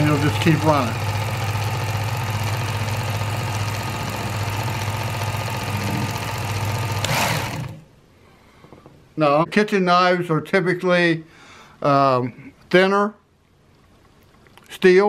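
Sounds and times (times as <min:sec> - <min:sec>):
belt sharpener motor hum: 0:00.0 - 0:07.8.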